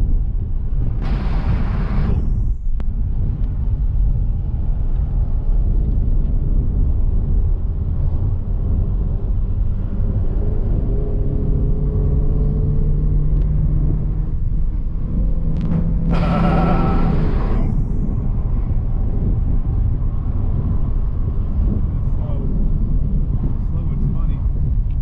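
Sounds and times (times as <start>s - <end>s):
road and wind noise: 0.0s - 25.0s
car engine note: 11.5s - 17.8s.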